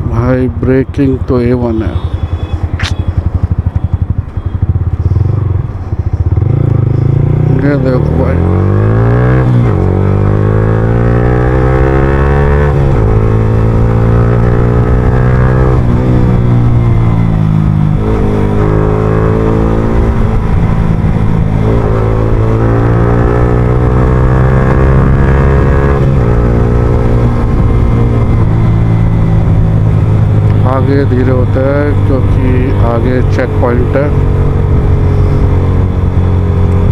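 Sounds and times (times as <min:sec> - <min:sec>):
motorcycle engine accelerating through gears: 0:00.0 - 0:36.9.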